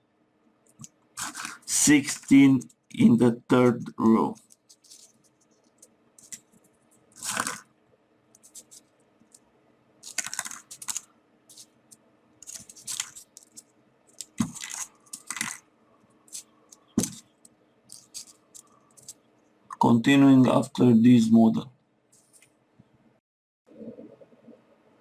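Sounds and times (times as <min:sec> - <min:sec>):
paper rustling and crinkling: 0:01.2 - 0:02.4, 0:04.4 - 0:06.6, 0:07.2 - 0:07.6, 0:08.4 - 0:08.9, 0:10.0 - 0:11.8, 0:12.4 - 0:15.6, 0:16.3 - 0:17.3, 0:17.9 - 0:19.2.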